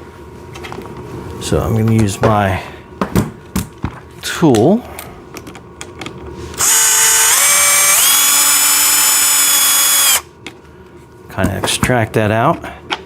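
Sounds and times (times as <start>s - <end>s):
power drill motor whine: 6.6s - 10.3s.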